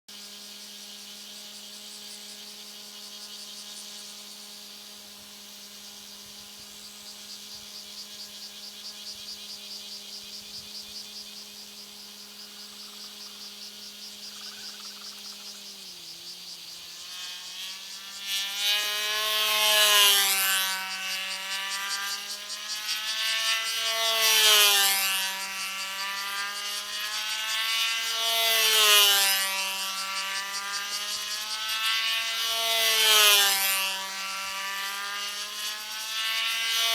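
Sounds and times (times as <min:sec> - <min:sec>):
model aeroplane engine running: 0:00.1 - 0:36.9.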